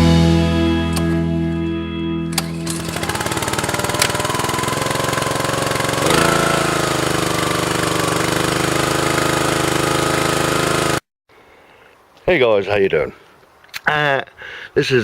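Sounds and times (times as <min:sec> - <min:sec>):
small petrol engine running: 0:02.3 - 0:11.0.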